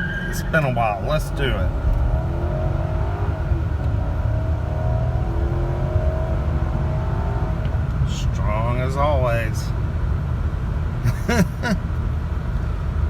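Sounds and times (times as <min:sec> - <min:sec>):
car engine accelerating hard: 0:00.0 - 0:09.4.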